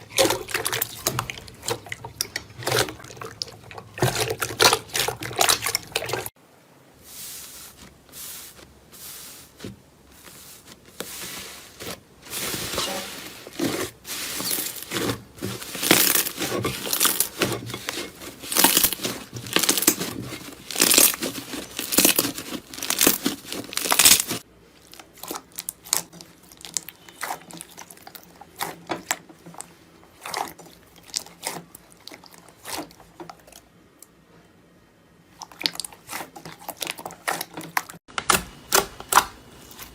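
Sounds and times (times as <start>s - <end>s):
brittle material crunching: 11.7s - 29.6s.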